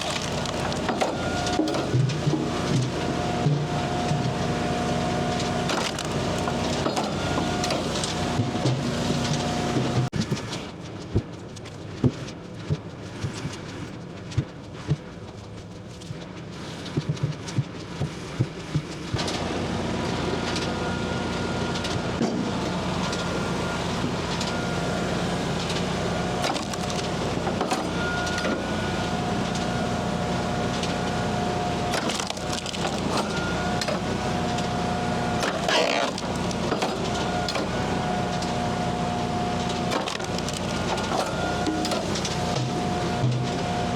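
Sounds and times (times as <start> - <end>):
wood pieces knocking: 0.0 - 1.2
wood cracking and splintering: 0.0 - 2.9, 5.3 - 9.6, 25.6 - 28.6, 31.8 - 38.6, 39.5 - 43.4
hydraulic log splitter running: 0.0 - 10.7, 19.1 - 43.9.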